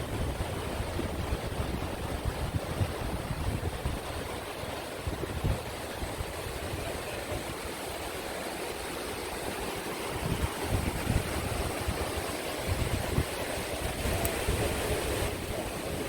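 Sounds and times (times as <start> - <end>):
rapids roaring: 0.0 - 16.0
wind buffeting microphone: 0.0 - 16.0.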